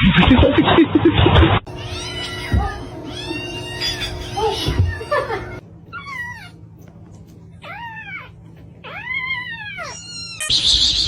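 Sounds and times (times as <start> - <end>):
cat meowing: 1.7 - 6.4.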